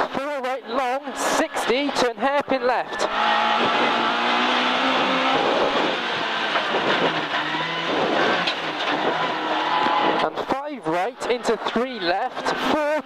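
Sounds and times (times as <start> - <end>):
road noise: 0.0 - 13.0
car engine from inside cabin: 3.0 - 10.4.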